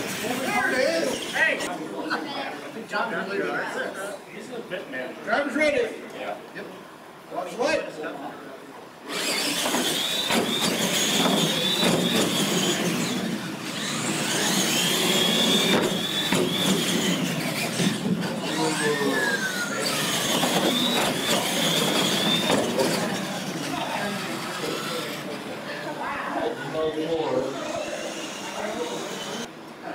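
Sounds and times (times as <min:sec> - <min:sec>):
electric motor whine: 0:09.1 - 0:25.3, 0:26.8 - 0:29.5
toy trucks landing thuds: 0:14.3 - 0:18.0.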